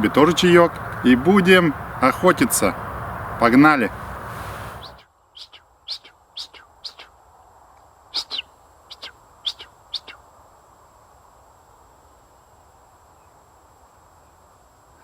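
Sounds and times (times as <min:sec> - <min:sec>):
steady rushing noise: 0:00.0 - 0:05.0
songbirds chirping: 0:00.0 - 0:10.3.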